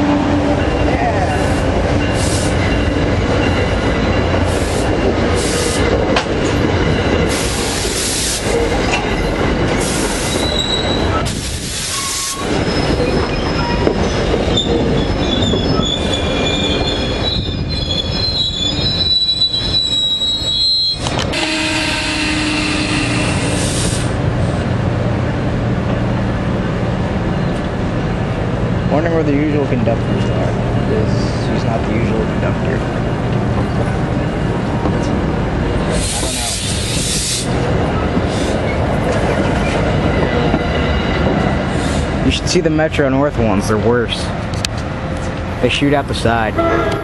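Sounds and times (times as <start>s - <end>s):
train rumbling on rails: 0.0s - 47.0s
wheel squeal: 10.2s - 21.2s.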